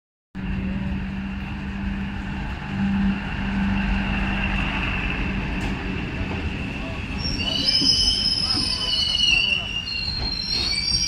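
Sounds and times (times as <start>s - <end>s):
diesel engine drone: 0.4s - 7.0s
high-pitched squeal: 0.4s - 11.0s.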